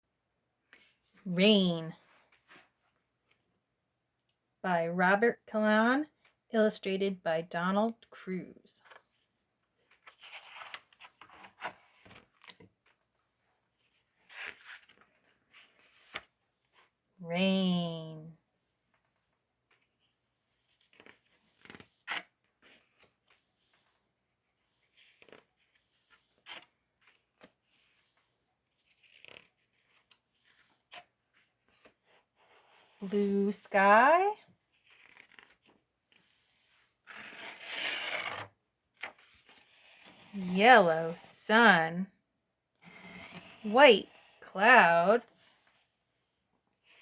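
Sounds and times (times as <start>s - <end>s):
paper pages rustling: 9.8s - 13.0s, 13.8s - 16.9s, 19.7s - 24.0s, 24.6s - 32.9s, 34.7s - 40.4s.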